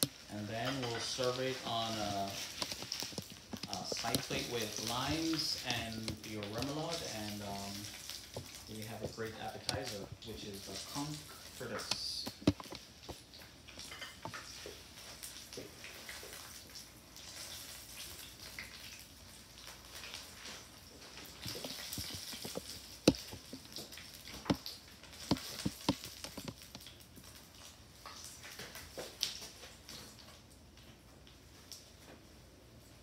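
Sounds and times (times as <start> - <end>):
food sizzling in hot oil: 0.0 - 30.8
sharp clicks and knocks: 11.8 - 14.5, 21.4 - 26.9.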